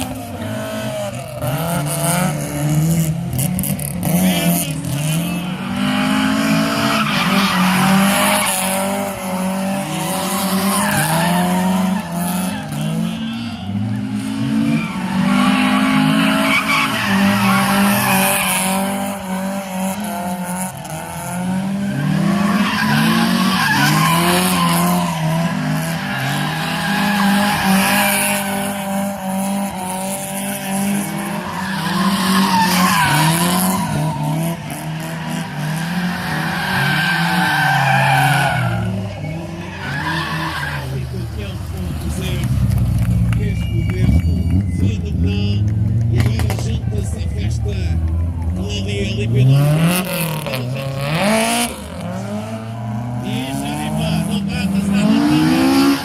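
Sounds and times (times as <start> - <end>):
car engine revving: 0.0 - 56.0
tyres squealing: 9.8 - 21.0, 21.7 - 42.6.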